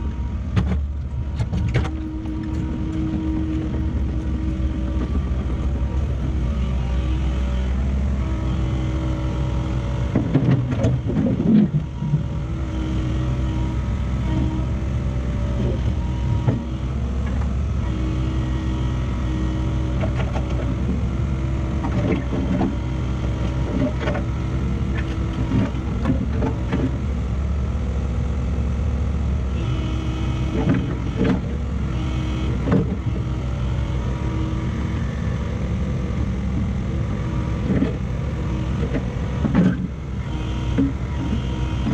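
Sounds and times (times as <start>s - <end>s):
heavy diesel engine running: 0.0s - 41.9s
knocks and clunks: 0.4s - 6.2s, 10.0s - 12.2s, 24.9s - 27.0s, 30.5s - 31.6s, 32.6s - 33.2s, 38.7s - 40.0s.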